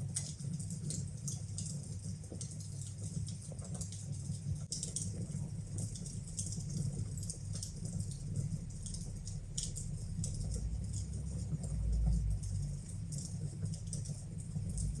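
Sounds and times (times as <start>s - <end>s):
low steady rumble: 0.0s - 15.0s
wood fire crackling and popping: 0.0s - 15.0s.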